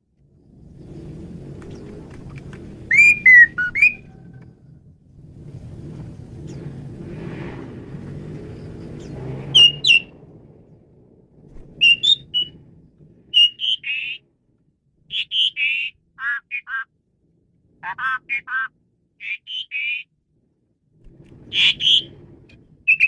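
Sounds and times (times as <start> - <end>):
low background rumble: 0.0 - 23.0
starling singing: 2.8 - 4.1, 9.0 - 10.1, 11.8 - 12.6, 13.3 - 14.2, 15.1 - 16.9, 17.8 - 20.1, 21.5 - 22.1.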